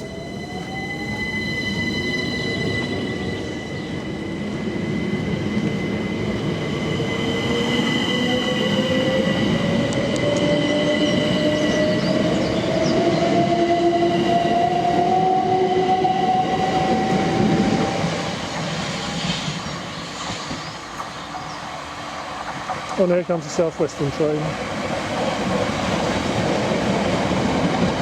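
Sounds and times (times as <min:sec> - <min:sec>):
train traction motor whine: 0:00.0 - 0:19.3
wheels rumbling on rails: 0:00.0 - 0:28.0.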